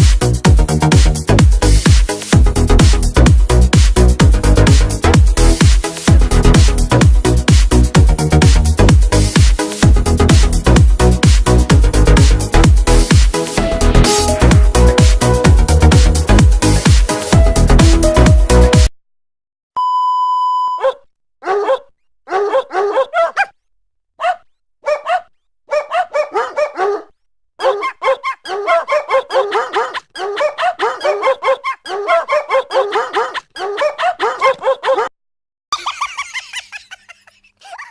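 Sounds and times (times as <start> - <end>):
electronic beep: 19.8 - 20.9
dog barking: 20.8 - 23.6, 24.2 - 35.1.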